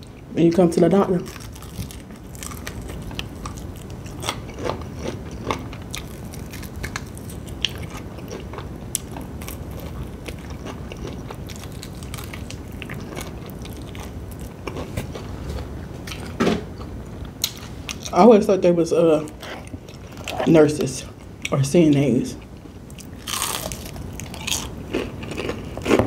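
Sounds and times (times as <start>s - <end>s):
crunchy chewing of fried chicken: 1.2s - 18.2s, 22.4s - 26.0s.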